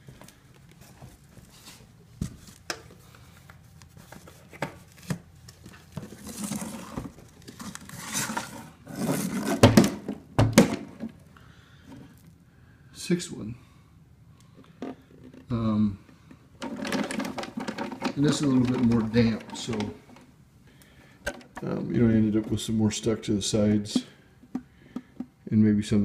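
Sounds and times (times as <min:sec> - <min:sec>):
rustling and scraping: 0:00.0 - 0:11.2, 0:14.6 - 0:20.3.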